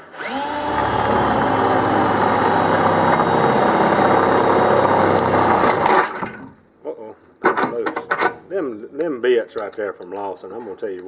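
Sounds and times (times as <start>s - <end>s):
electric drill boring: 0.0s - 6.2s.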